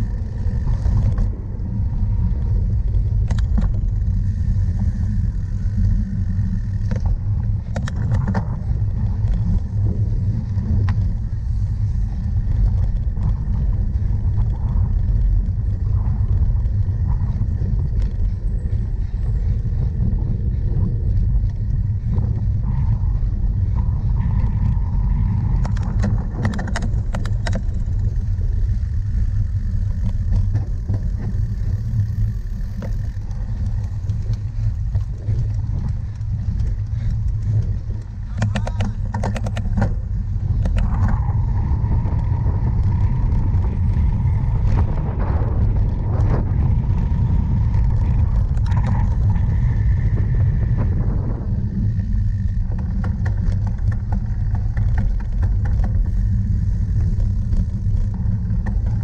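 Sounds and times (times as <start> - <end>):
bike rattling clicks: 0.0 - 59.0
wind rumble on microphone: 0.0 - 59.0.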